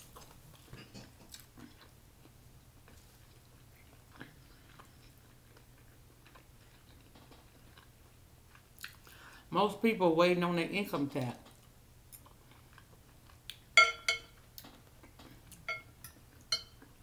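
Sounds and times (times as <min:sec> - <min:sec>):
faint chewing of food: 0:00.0 - 0:09.4, 0:11.4 - 0:13.8
low steady hum: 0:00.0 - 0:17.0.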